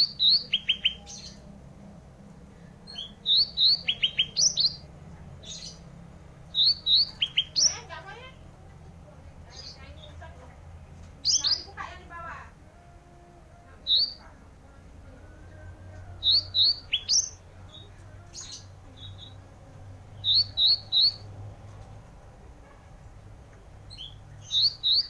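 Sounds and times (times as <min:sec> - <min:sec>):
bird singing sharp rising notes: 0:00.0 - 0:08.4, 0:11.2 - 0:11.8, 0:12.6 - 0:22.3, 0:23.8 - 0:25.0.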